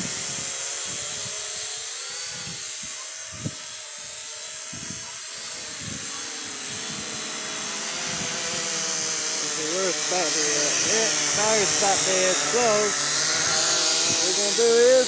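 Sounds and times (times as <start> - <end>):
drone propellers humming: 0.0 - 15.0
wind buffeting microphone: 4.7 - 15.0.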